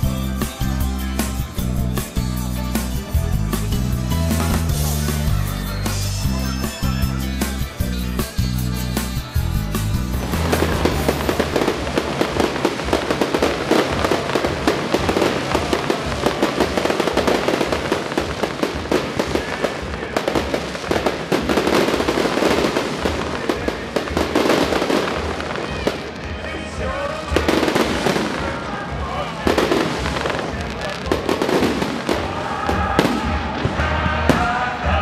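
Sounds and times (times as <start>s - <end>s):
fireworks bangs and crackling: 0.0s - 35.0s
music playing: 0.0s - 35.0s.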